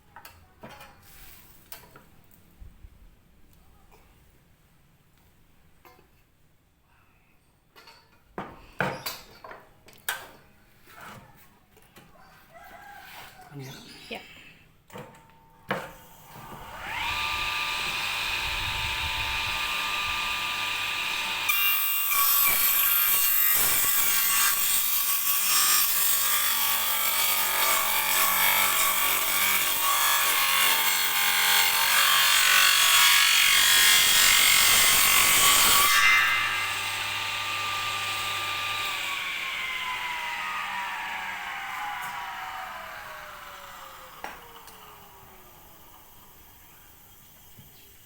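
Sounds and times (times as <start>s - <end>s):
saw cutting through board: 16.0s - 47.6s
table saw motor whining: 16.2s - 47.5s.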